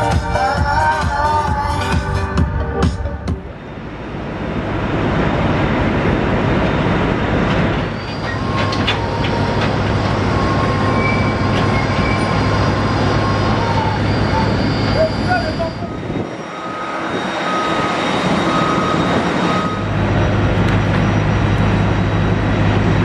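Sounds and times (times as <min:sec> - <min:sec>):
train rumbling: 0:00.0 - 0:23.0
high wheel squeal: 0:07.8 - 0:22.0.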